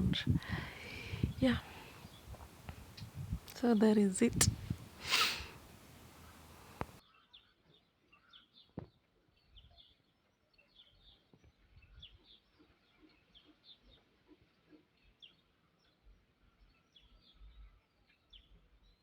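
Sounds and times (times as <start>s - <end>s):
faint bird chirps: 0.0s - 7.0s.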